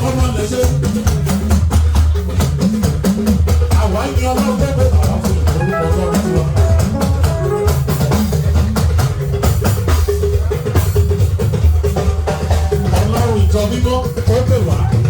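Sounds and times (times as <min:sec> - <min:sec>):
instrumental band music: 0:01.8 - 0:13.0.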